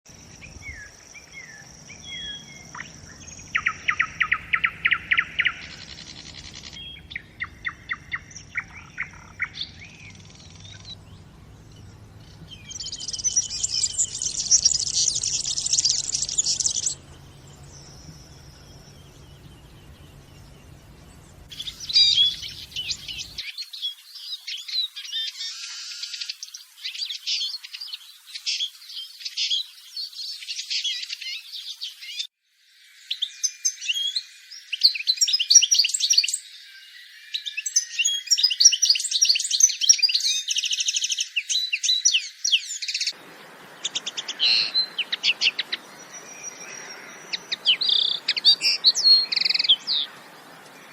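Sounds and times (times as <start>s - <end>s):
faint low background noise: 0.1s - 25.4s, 42.7s - 50.9s
songbirds singing: 0.1s - 50.9s.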